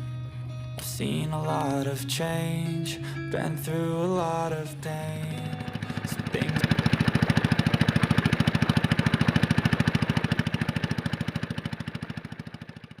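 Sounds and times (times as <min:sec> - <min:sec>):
boat engine chugging: 0:05.2 - 0:13.0.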